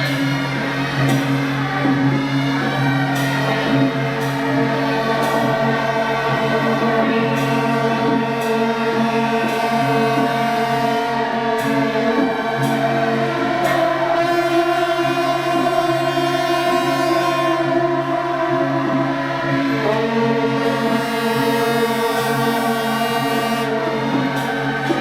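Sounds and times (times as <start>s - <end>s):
loud sustained chord music: 0.0s - 25.0s.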